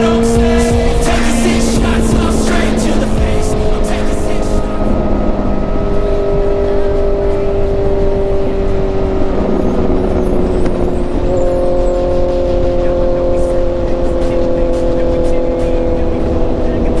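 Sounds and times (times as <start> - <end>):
motorcycle engine running: 0.0 - 4.7.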